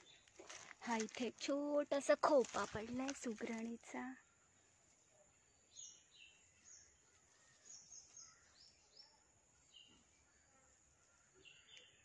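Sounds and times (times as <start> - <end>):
faint birdsong chirps: 0.0 - 2.3, 3.0 - 12.0.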